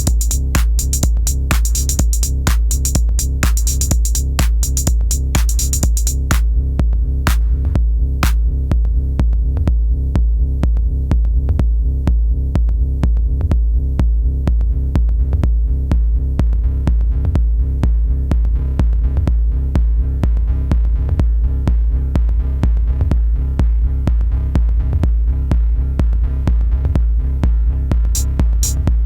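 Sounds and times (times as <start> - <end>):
electronic dance music: 0.0 - 6.4, 7.3 - 7.5, 28.2 - 28.8
sharp drum machine hits: 0.0 - 6.4, 7.3 - 7.5, 28.2 - 28.8
pulsing deep bass: 0.0 - 29.0.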